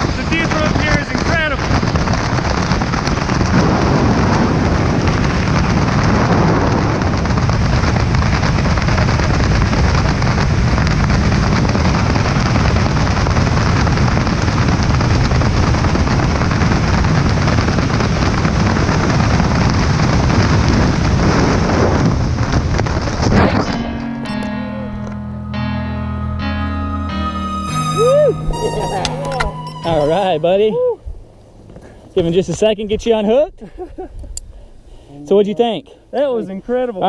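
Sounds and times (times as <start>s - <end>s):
wind buffeting microphone: 0.0s - 23.8s.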